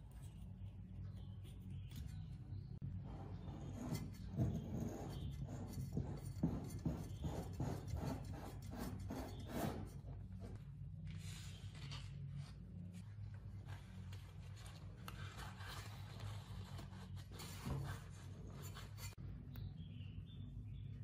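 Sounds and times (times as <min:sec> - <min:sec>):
hand rubbing and scraping surface: 0:00.2 - 0:19.2.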